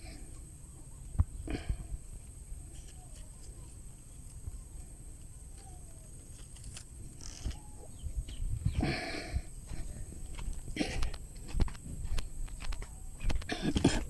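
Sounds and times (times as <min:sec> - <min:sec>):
faint chicken calls: 0:00.0 - 0:10.3.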